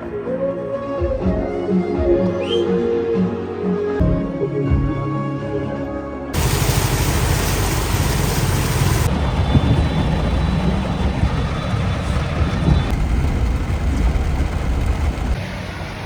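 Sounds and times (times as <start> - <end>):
road vehicle rumble: 6.4 - 16.0.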